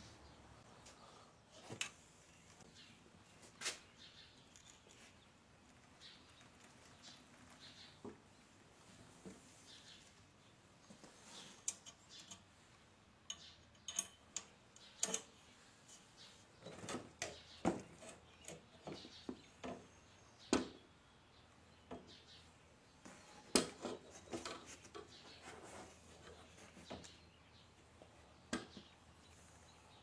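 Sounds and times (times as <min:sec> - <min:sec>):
metal clicks and clinks: 0:13.3 - 0:15.3.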